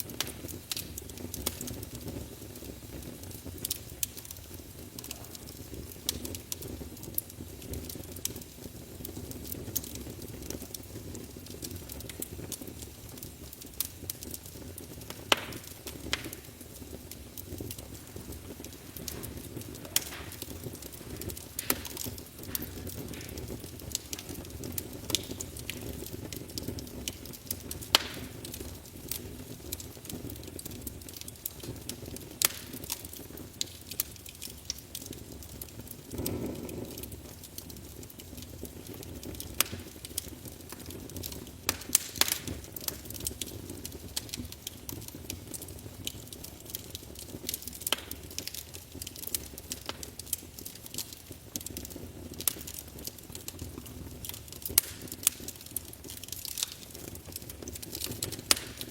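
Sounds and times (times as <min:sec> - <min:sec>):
low rumble of flames: 0:00.0 - 0:58.9
wood fire crackling and popping: 0:00.0 - 0:58.9.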